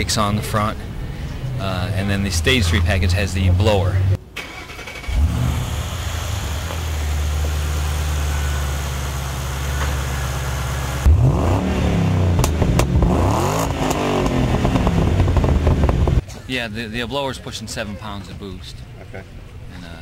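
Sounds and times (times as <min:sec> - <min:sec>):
car engine starting and idling: 0:00.0 - 0:16.2
engine revving: 0:01.5 - 0:16.2.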